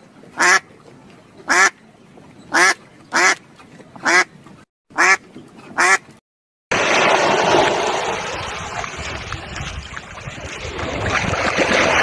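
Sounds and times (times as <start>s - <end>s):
ducks quacking: 0.4s - 0.6s, 1.5s - 1.8s, 2.5s - 3.4s, 4.0s - 4.3s, 5.0s - 6.1s
ocean surf rushing: 6.7s - 12.0s.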